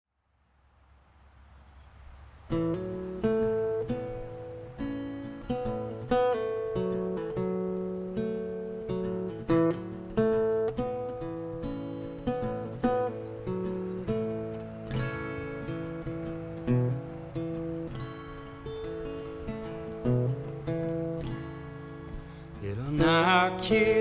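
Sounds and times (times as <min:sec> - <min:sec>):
faint low hum: 0:00.1 - 0:04.8
acoustic guitar chords strummed: 0:02.5 - 0:24.0.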